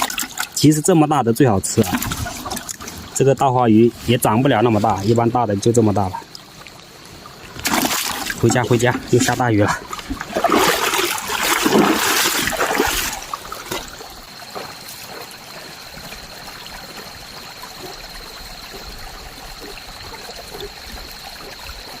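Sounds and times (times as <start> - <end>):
running water trickling: 0.0 - 22.0
water splashing: 0.0 - 22.0.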